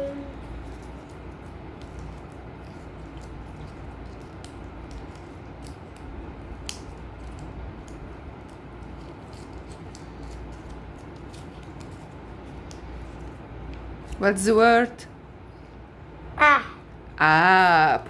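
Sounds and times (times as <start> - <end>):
steady low hum: 0.0 - 18.0
paper crinkling and clicking: 0.6 - 14.2.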